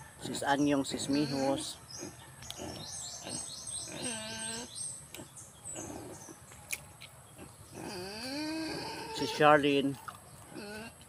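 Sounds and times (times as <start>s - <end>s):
bird singing high slurred notes: 0.7s - 6.5s.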